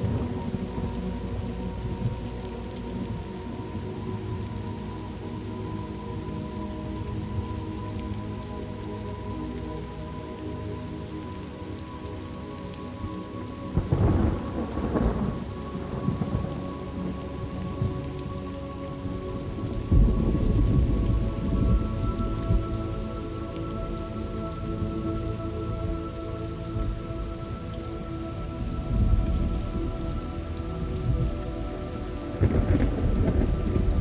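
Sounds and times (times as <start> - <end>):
deep thunder rumble: 0.0 - 2.4, 13.8 - 17.2, 19.4 - 23.0, 26.8 - 34.0
steady rain falling: 0.0 - 34.0.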